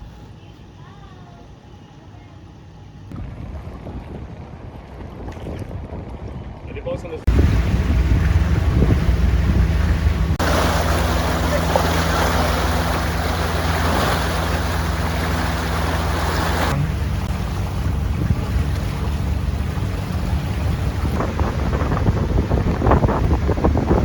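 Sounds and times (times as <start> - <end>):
wind noise: 3.1 - 6.7, 7.3 - 24.0
boat engine running: 7.3 - 24.0
water rushing: 7.3 - 24.0.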